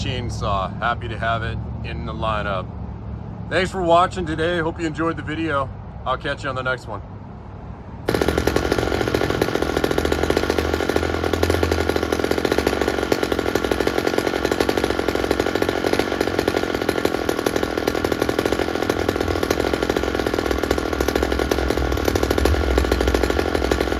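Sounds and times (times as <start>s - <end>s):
chainsaw running: 8.1s - 23.9s.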